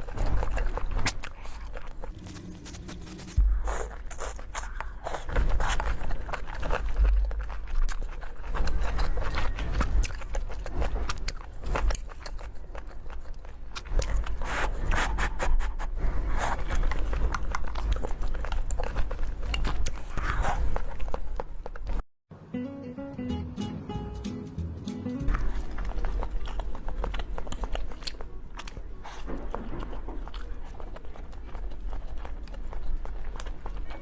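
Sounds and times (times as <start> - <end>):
person chewing crunchy food: 0.0 - 15.6, 16.3 - 22.0, 25.3 - 34.0
low rumble: 1.5 - 5.2.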